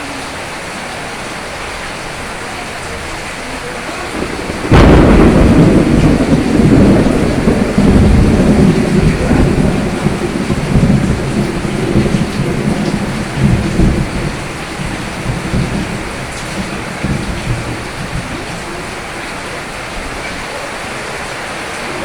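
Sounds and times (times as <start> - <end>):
rain falling: 0.0 - 22.0
thunder rumbling: 3.6 - 21.2.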